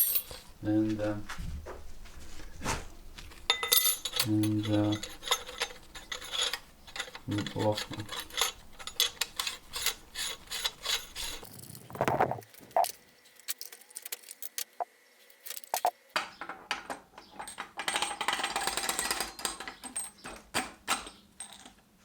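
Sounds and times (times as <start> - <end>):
metal parts clinking: 0.0 - 0.5, 3.4 - 15.9
metal scraping and rattling: 3.2 - 15.9.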